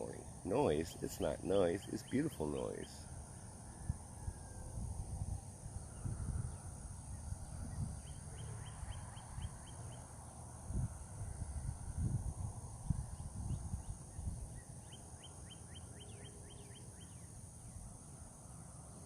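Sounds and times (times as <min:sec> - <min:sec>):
bird chirping: 0:00.0 - 0:03.5, 0:05.9 - 0:10.4, 0:13.2 - 0:17.8
high insect drone: 0:00.0 - 0:19.0.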